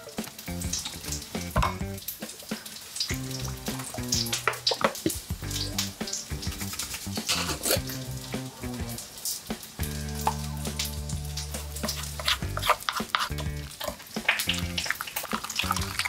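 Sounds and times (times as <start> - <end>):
food sizzling in pan: 0.0 - 16.0
background music with bass: 0.4 - 2.1, 3.1 - 9.1, 9.8 - 13.8, 14.4 - 15.0, 15.6 - 16.0
stirring clicks and scrapes: 6.5 - 7.9, 11.8 - 16.0.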